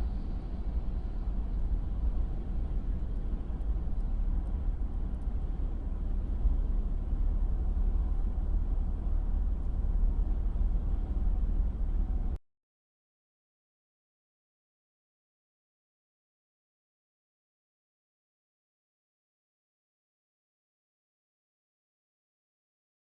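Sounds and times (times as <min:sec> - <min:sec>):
vehicle rumble: 0:00.0 - 0:12.4.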